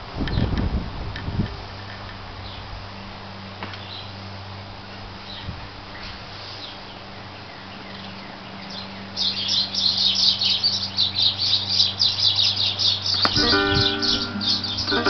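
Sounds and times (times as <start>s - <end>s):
steady low hum: 0.0s - 15.0s
small bird chirping: 5.2s - 15.0s.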